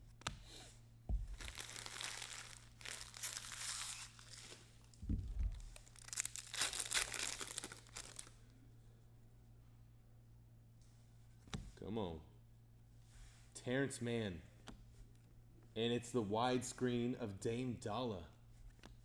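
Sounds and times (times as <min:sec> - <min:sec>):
low electrical hum: 0:00.0 - 0:19.0
wrappers torn and crinkled: 0:01.2 - 0:08.4
low thump: 0:05.0 - 0:05.7.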